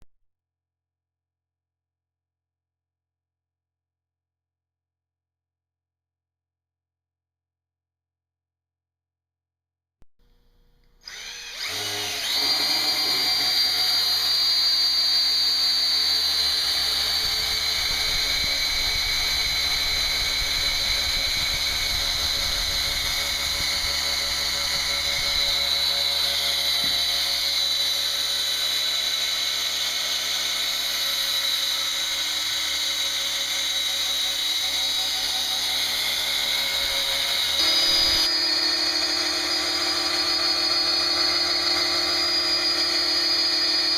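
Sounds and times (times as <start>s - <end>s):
electric drill whining: 10.3s - 43.9s.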